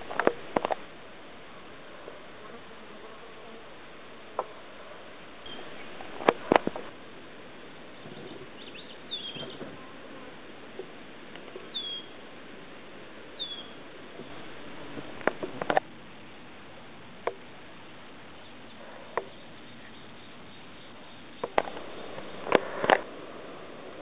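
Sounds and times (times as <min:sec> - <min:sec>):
steady hiss: 0:00.0 - 0:24.0
bird falling chirp: 0:05.5 - 0:06.9
sharp clicks: 0:21.4 - 0:23.0.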